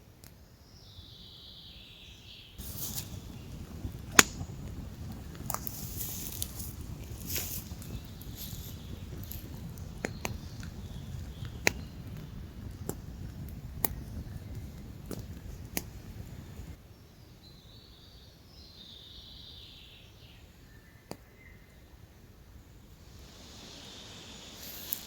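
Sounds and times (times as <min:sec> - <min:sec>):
low rumble: 0:02.6 - 0:16.8
sharp clicks and snaps: 0:02.9 - 0:16.8.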